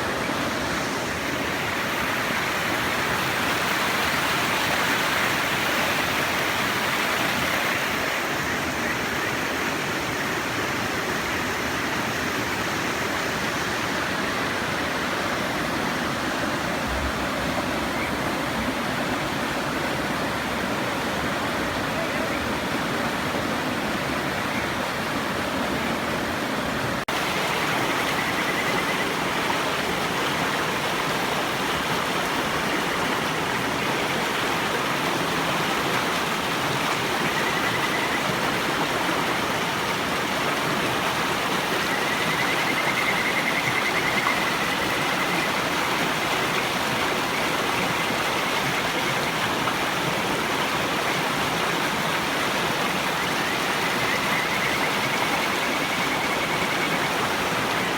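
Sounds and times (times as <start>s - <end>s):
river water rushing: 0.0s - 57.9s
frogs trilling whistles: 27.2s - 31.6s, 36.8s - 40.4s, 41.3s - 49.4s, 52.7s - 57.9s.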